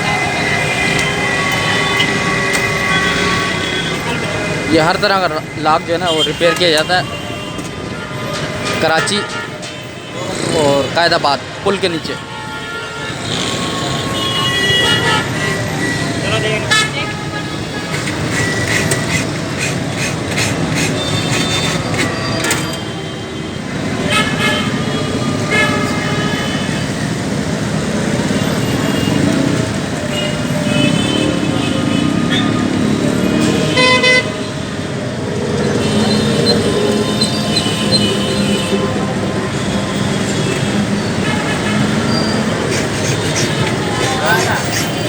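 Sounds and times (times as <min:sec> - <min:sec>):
street traffic rumbling: 0:00.0 - 0:45.0
vehicle horn honking: 0:06.0 - 0:10.3, 0:12.3 - 0:18.9, 0:30.1 - 0:34.6.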